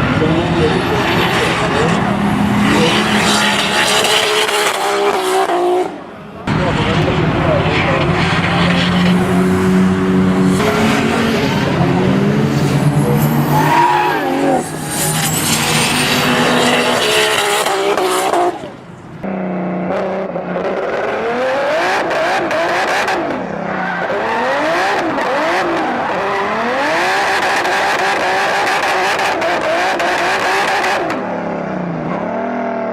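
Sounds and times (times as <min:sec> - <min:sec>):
car engine revving: 0:00.0 - 0:32.9
tyres squealing: 0:12.9 - 0:17.8.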